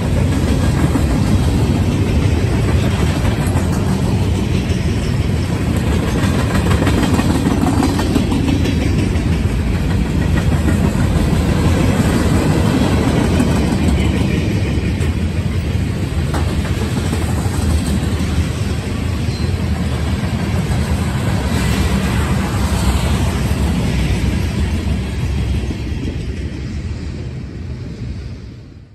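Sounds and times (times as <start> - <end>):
steel wheels rumbling on rail: 0.0 - 28.9.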